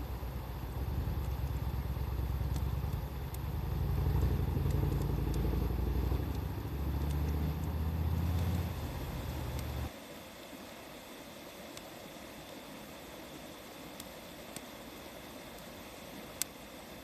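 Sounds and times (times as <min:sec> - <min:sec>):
vehicle engine rumble: 0:00.0 - 0:09.9
wood fire crackling: 0:00.0 - 0:09.9, 0:11.7 - 0:17.0.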